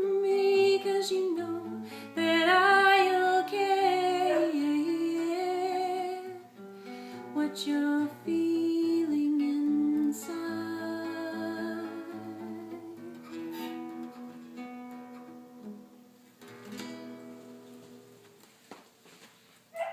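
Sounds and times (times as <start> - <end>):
guitar chords: 0.0 - 18.4.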